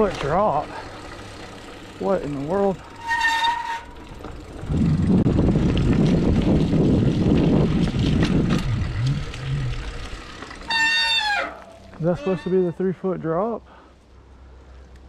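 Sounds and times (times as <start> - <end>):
bike clicks and rattles: 0.0 - 12.8
bike tyres rolling on dirt: 0.0 - 15.0
wind buffeting microphone: 4.4 - 10.1.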